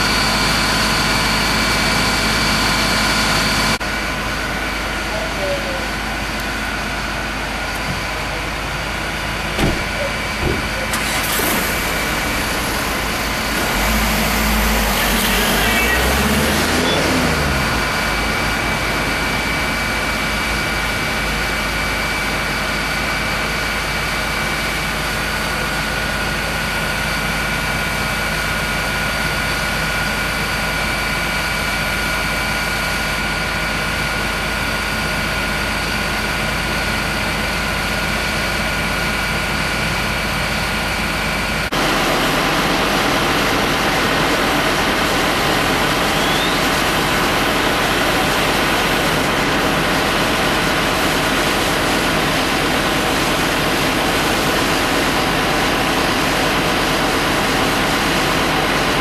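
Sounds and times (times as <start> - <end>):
truck engine running: 0.0 - 59.0
high whine: 7.4 - 22.6, 41.8 - 57.2.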